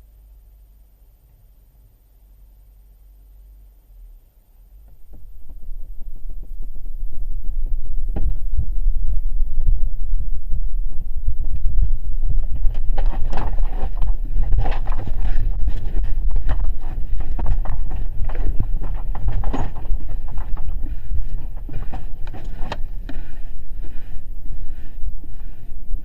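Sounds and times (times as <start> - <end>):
deep earthquake rumbling: 4.6 - 26.0
loose objects clattering and knocking: 11.5 - 23.4.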